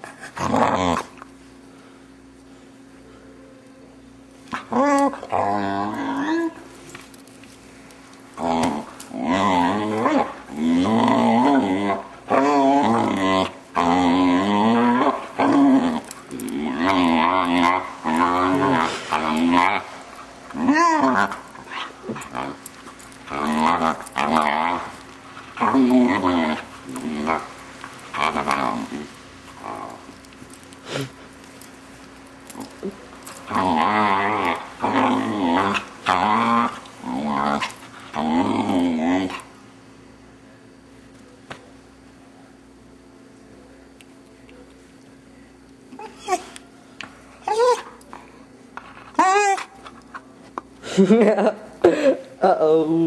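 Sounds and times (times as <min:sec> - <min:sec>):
puppy growl-moaning: 0:00.1 - 0:01.2, 0:04.5 - 0:06.7, 0:08.4 - 0:31.2, 0:32.4 - 0:39.6, 0:45.9 - 0:46.6, 0:47.4 - 0:48.0, 0:49.1 - 0:50.1
dog making wavering vocal noises: 0:08.4 - 0:22.6, 0:23.2 - 0:30.2, 0:49.1 - 0:49.9.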